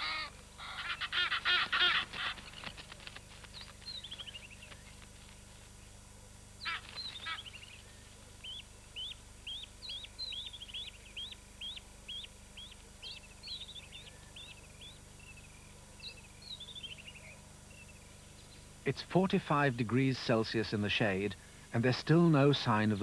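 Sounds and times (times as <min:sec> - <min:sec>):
harsh bird calls: 0:00.0 - 0:04.9, 0:06.6 - 0:15.4
faint low hum: 0:00.0 - 0:23.0.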